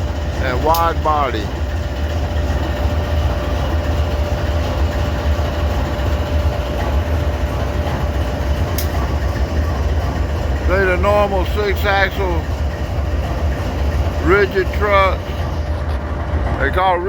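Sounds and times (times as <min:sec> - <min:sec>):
locomotive idling rumble: 0:00.0 - 0:17.0.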